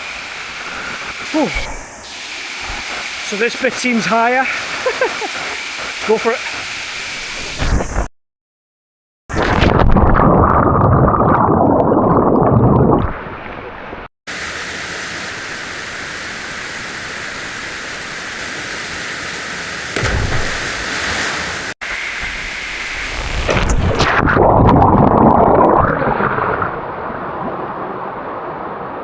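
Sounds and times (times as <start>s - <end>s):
waterfall rushing: 0.0s - 7.4s, 14.4s - 23.5s.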